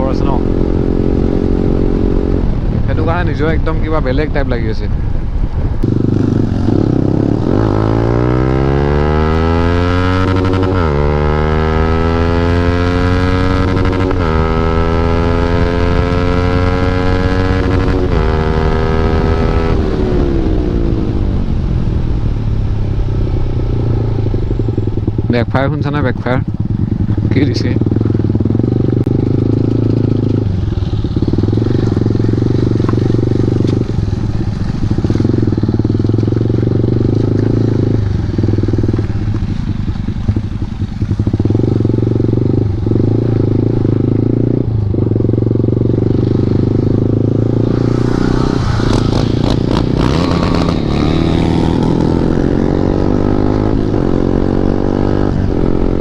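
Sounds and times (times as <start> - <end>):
loud motorcycle engine: 0.0 - 4.6, 5.7 - 56.0
exhaust backfire pops: 31.4 - 36.4.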